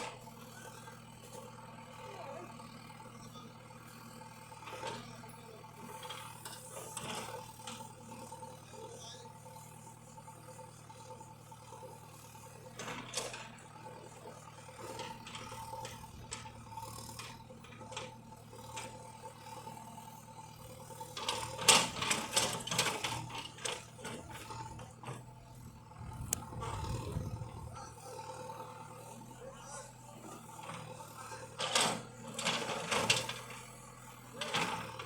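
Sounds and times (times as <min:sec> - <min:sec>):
tractor engine running: 0:00.0 - 0:35.0
mechanical rattling and clicking: 0:20.7 - 0:24.8.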